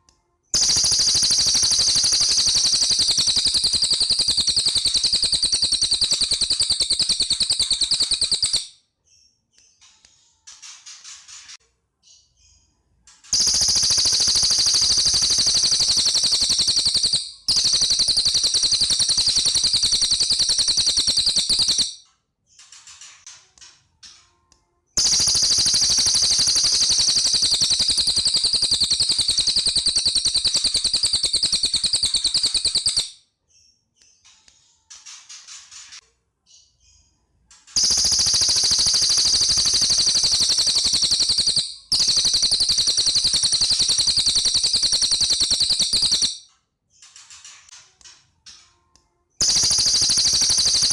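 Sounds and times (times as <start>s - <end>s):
bird singing high trills: 0.6s - 8.8s, 13.3s - 22.0s, 25.0s - 33.2s, 37.8s - 46.4s, 49.4s - 50.9s.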